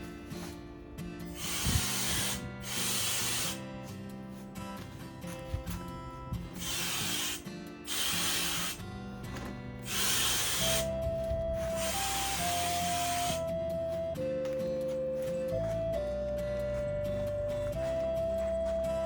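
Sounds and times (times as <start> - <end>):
background music: 0.0 - 19.0
aerosol spray can hissing: 1.3 - 3.7, 6.4 - 8.9, 9.8 - 13.5.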